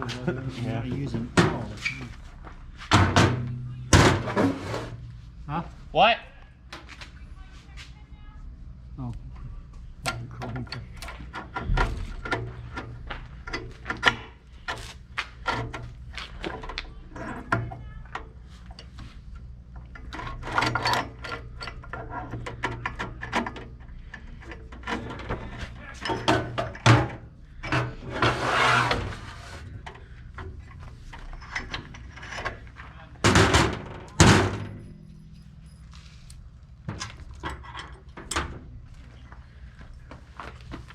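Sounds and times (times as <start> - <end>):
steady low hum: 0.0 - 40.9
hand tools and metal parts clinking: 29.8 - 40.7.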